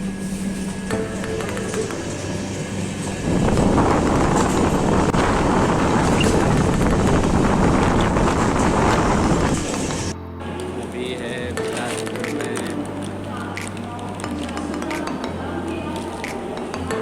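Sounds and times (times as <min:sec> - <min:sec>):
train running rush and rattle: 0:00.0 - 0:10.2.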